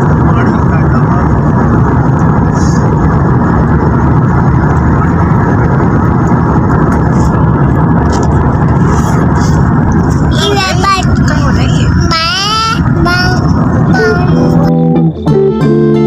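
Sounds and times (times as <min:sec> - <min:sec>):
car rumbling on highway: 0:00.0 - 0:15.3.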